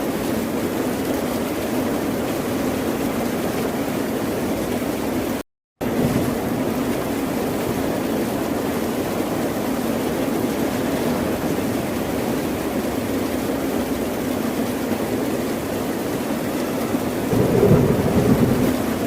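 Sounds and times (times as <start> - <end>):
ocean surf roaring: 17.1 - 19.0.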